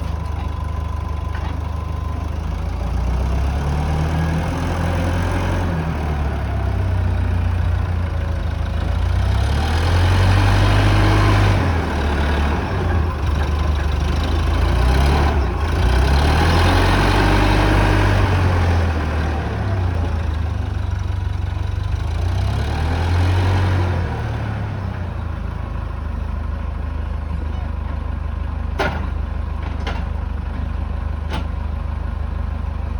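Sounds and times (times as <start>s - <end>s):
wheel loader engine revving: 0.0s - 26.1s.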